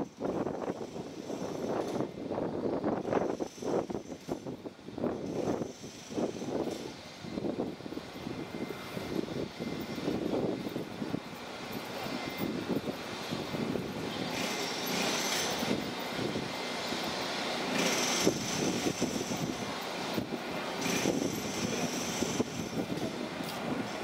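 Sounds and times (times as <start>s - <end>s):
passenger train rumbling: 0.0s - 24.0s
hiss: 14.1s - 24.0s.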